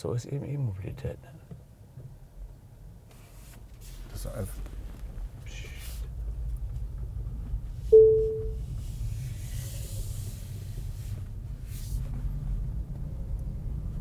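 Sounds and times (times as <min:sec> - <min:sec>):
car cabin road rumble: 0:00.6 - 0:14.0
short chime-like tone: 0:08.0 - 0:08.6.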